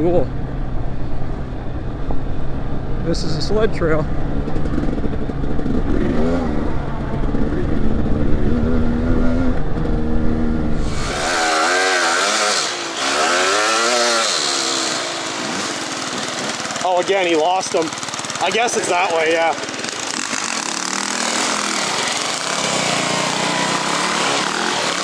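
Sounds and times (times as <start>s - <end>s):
dirt bike engine revving: 3.2s - 25.0s
rushing hiss: 10.8s - 16.3s.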